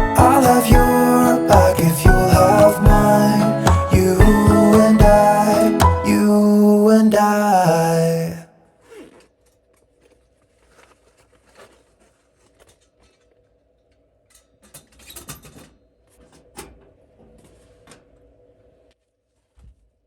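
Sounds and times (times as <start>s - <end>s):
rustling of small objects: 9.2s - 14.0s.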